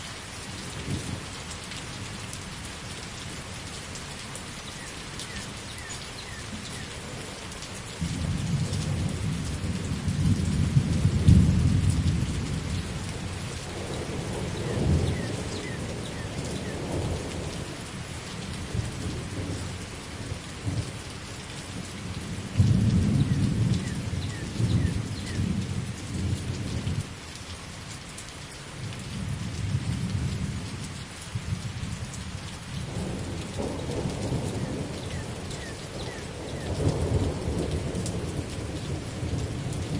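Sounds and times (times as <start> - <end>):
heavy rain: 0.0 - 39.9
thunder rumbling: 8.0 - 17.6, 22.3 - 27.0, 32.8 - 39.9.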